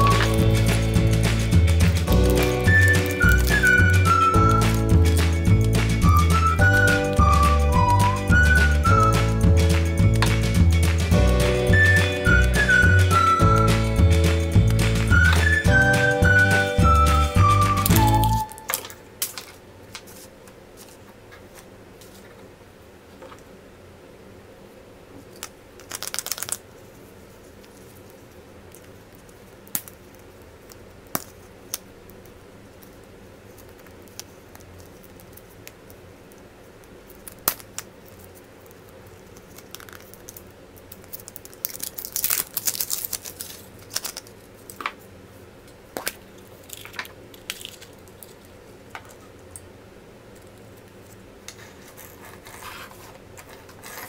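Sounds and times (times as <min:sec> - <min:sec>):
steady low hum: 0:00.0 - 0:25.8
wrapper crinkling: 0:25.8 - 0:26.6, 0:37.2 - 0:44.9, 0:46.0 - 0:48.5.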